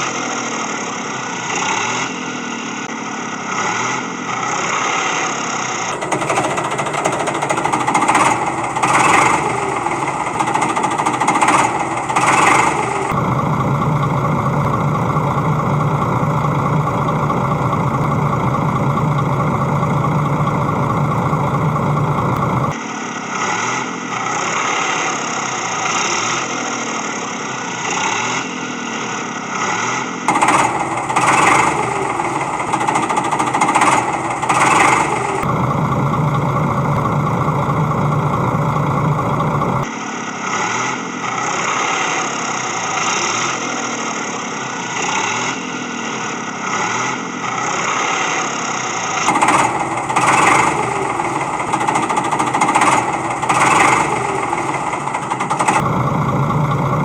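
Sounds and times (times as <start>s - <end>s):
tractor engine revving: 5.8s - 22.8s, 30.3s - 39.9s, 49.2s - 57.0s.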